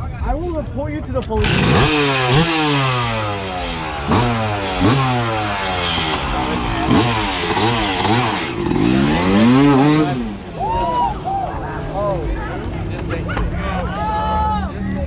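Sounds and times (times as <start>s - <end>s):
dirt bike engine revving: 1.4s - 13.0s.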